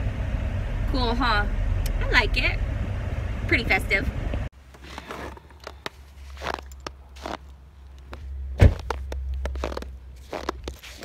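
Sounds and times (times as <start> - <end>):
low steady rumble: 0.0 - 11.0
footsteps in snow: 4.8 - 11.0.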